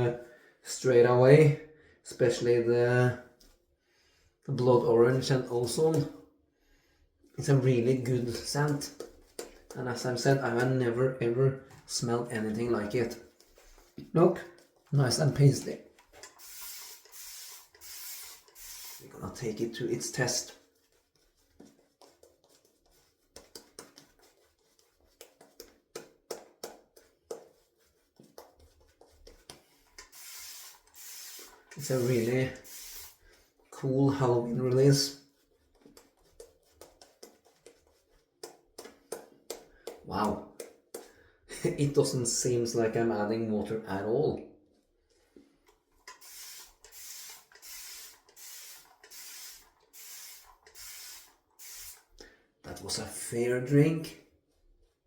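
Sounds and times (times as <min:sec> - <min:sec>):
shaving brush swishing in lather: 0:12.4 - 0:39.0.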